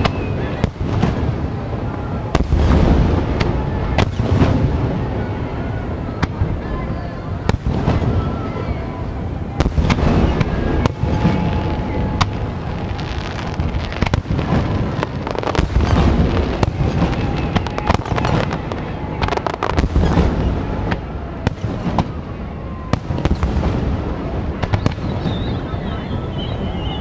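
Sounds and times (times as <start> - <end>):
sharp bangs and crackles: 0.0 - 5.4, 9.5 - 25.6.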